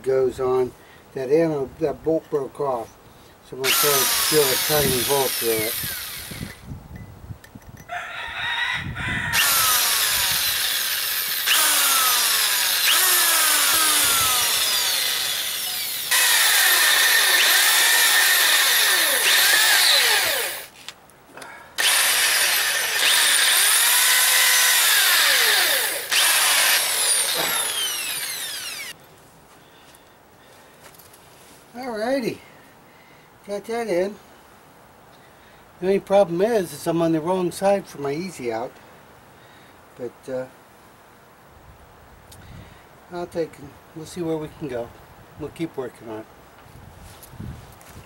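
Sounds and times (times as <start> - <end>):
electric drill boring into metal: 3.6 - 6.6, 9.3 - 20.7, 21.8 - 29.0.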